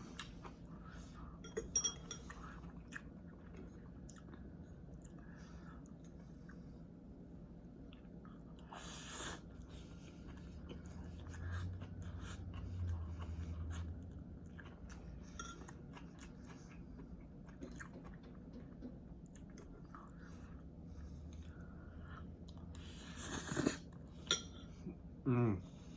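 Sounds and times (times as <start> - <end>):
chewing noodles: 7.9 - 24.1.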